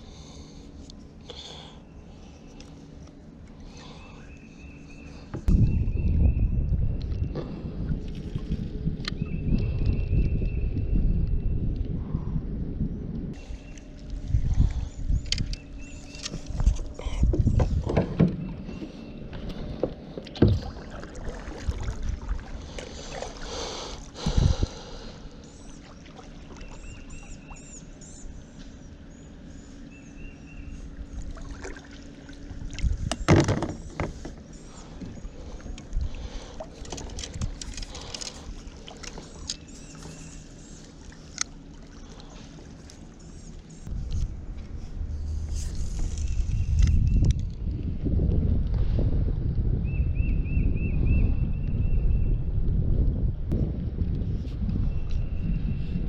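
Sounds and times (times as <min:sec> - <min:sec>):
paddle strokes splashing water: 0:20.2 - 0:24.2, 0:31.2 - 0:32.9, 0:35.6 - 0:43.2
knocks and thumps: 0:33.1 - 0:34.4.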